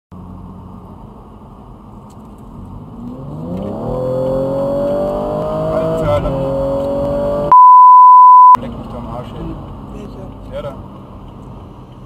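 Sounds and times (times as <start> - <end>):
car engine accelerating hard: 2.4 - 7.5.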